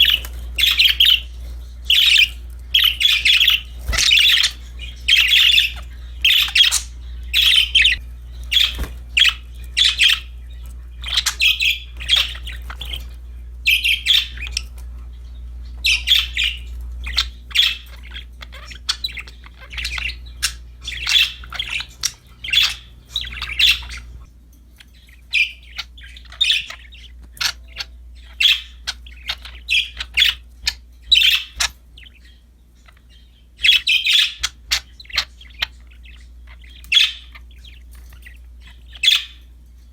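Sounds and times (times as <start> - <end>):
budgerigars chirping and chattering: 0.0 - 39.9
faint low hum: 0.0 - 39.9
budgerigar squawks: 15.8 - 24.3, 33.6 - 37.4.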